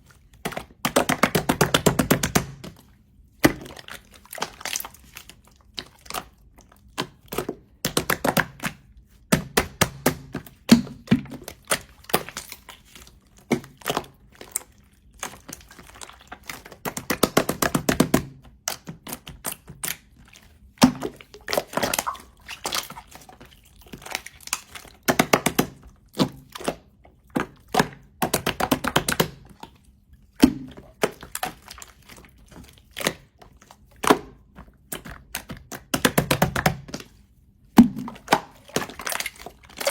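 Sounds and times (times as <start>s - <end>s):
slime squeezed by hand: 21.2s - 23.1s.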